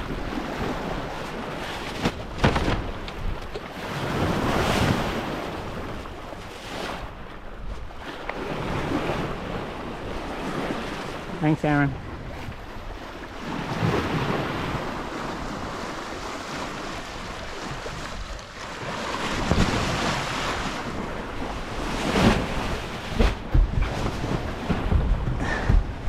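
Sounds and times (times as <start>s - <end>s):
waves washing past boat: 0.0s - 26.0s
thumps: 2.0s - 3.6s, 23.1s - 26.0s
wind buffeting microphone: 12.0s - 26.0s.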